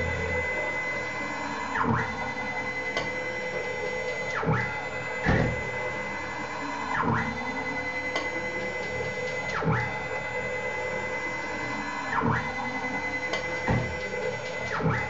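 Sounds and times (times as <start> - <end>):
stepper motor whine: 0.0 - 7.9.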